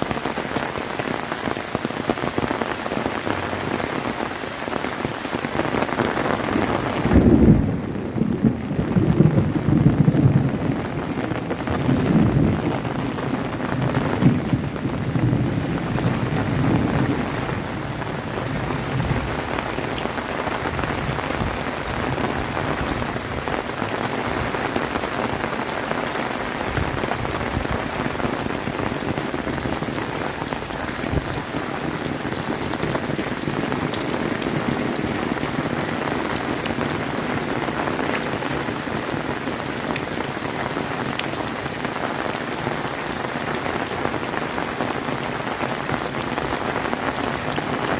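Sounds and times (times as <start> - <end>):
heavy rain pouring: 0.0 - 47.9
thunder rumble: 6.3 - 23.2.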